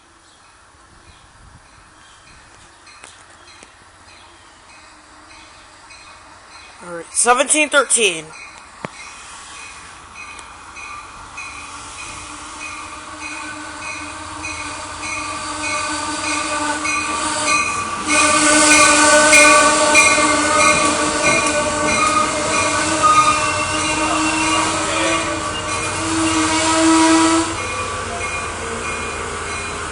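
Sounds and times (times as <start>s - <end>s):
train cars rolling past: 0.1s - 29.9s
train bell ringing: 4.1s - 18.0s, 18.7s - 26.0s, 27.5s - 29.9s
wheels and brakes squealing: 20.0s - 26.4s.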